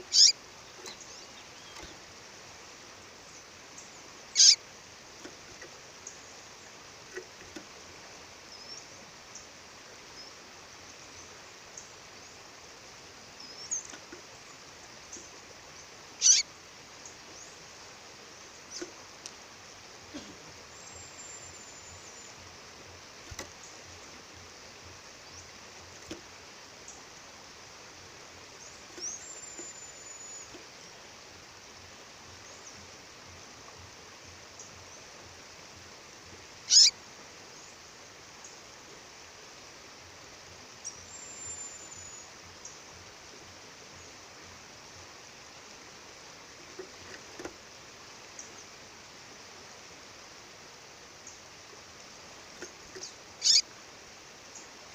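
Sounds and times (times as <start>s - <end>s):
sharp descending bird chirp: 0.1s - 0.3s, 53.4s - 53.6s.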